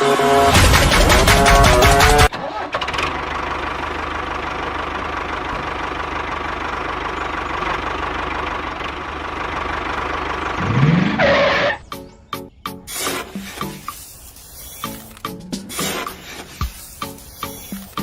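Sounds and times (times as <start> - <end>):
small engine running and revving: 10.6 - 11.7.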